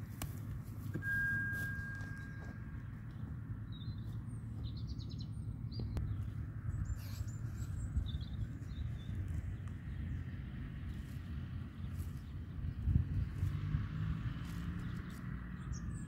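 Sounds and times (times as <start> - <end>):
bird trill: 1.0 - 9.1
small birds chirping: 1.0 - 16.0.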